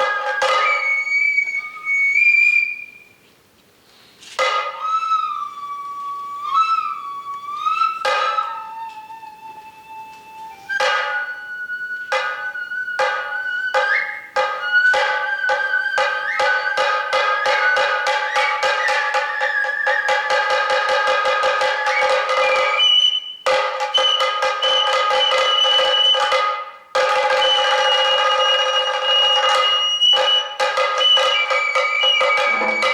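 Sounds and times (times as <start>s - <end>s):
drum strokes: 0.0s - 1.4s, 4.3s - 5.2s, 7.9s - 8.8s, 10.6s - 32.9s
high bamboo flute melody: 0.0s - 3.2s, 4.4s - 32.9s.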